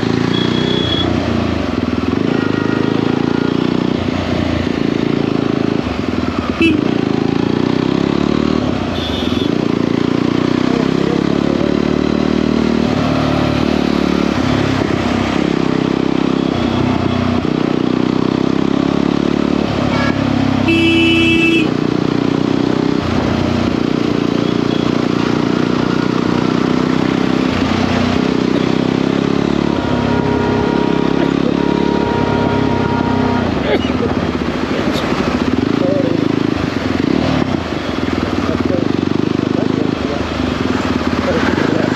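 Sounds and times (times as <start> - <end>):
horn honking: 0.0 - 1.2, 2.1 - 3.8, 6.4 - 7.0, 8.9 - 9.6, 19.8 - 21.8, 28.7 - 34.2
motorcycle engine running: 0.0 - 41.9.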